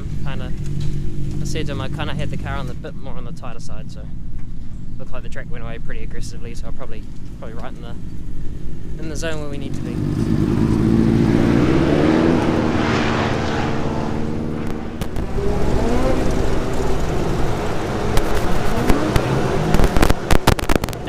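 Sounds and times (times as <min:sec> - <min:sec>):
race car engines: 0:00.0 - 0:21.0
sharp crackles: 0:14.5 - 0:21.0.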